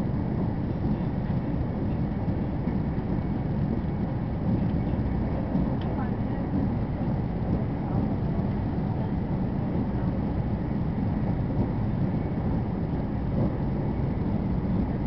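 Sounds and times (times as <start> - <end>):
train cabin running noise: 0.0 - 15.0.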